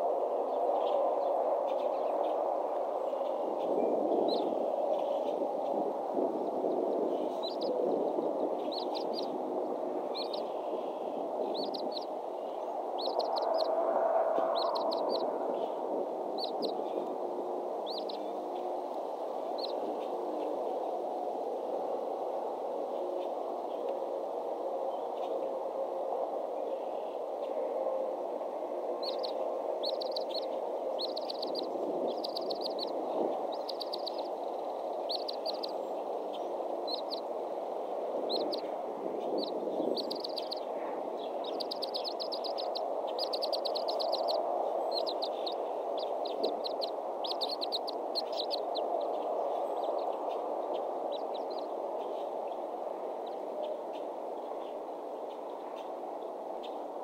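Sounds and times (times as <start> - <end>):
low rushing noise: 0.0 - 26.7
bird chirping trills: 7.1 - 9.4, 10.1 - 13.7, 14.4 - 15.8, 16.4 - 17.1, 17.8 - 18.7, 29.0 - 37.3, 38.2 - 38.7, 39.3 - 52.3.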